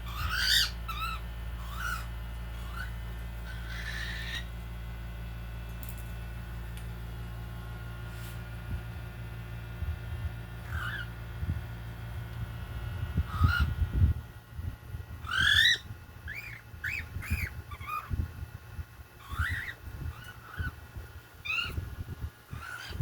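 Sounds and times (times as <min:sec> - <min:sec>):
cockatiels chirping: 0:00.0 - 0:04.5, 0:10.6 - 0:11.1, 0:13.3 - 0:13.7, 0:15.2 - 0:18.2, 0:19.2 - 0:20.8, 0:21.4 - 0:21.8, 0:22.5 - 0:23.0.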